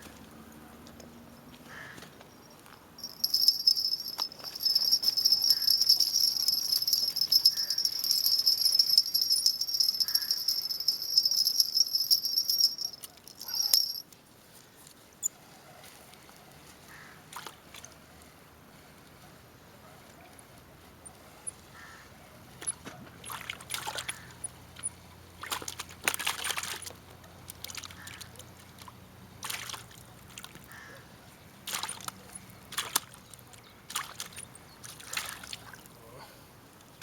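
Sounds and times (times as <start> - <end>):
fishing reel whirring: 3.0 - 14.0.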